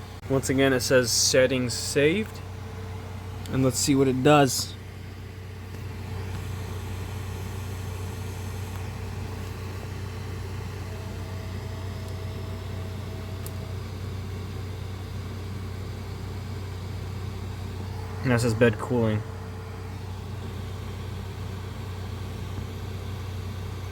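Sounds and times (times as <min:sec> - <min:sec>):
faint high whine: 0:00.0 - 0:23.9
printer fans humming: 0:00.0 - 0:23.9.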